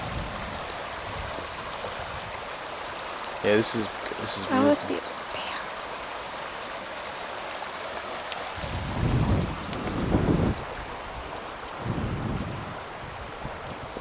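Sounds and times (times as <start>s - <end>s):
wind buffeting microphone: 0.0s - 3.0s, 8.4s - 14.0s
river rushing: 0.0s - 14.0s.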